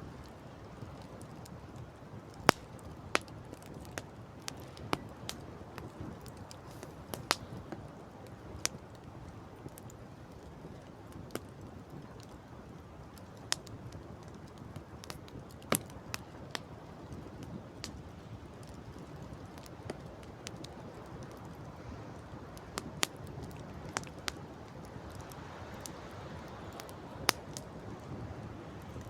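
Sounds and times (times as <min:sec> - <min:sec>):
campfire crackling: 0:00.0 - 0:29.0
sharp pops of fire: 0:02.3 - 0:07.8, 0:22.6 - 0:28.3.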